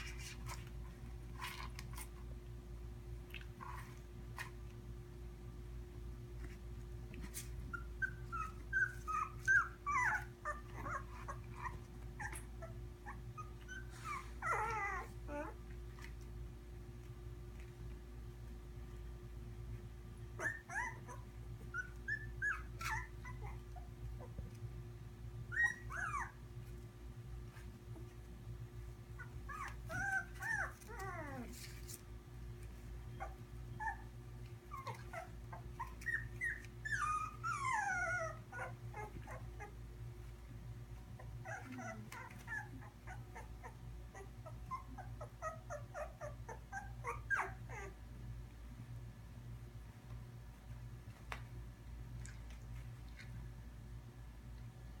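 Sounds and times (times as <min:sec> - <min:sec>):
puppies whimpering and squeaking: 0:07.4 - 0:15.6, 0:20.4 - 0:24.4, 0:25.5 - 0:26.4, 0:29.1 - 0:32.0, 0:33.1 - 0:39.8, 0:41.2 - 0:48.0.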